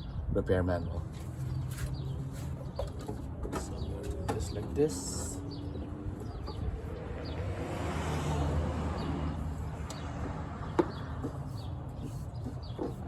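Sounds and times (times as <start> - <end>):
vehicle passing by: 5.5 - 12.1.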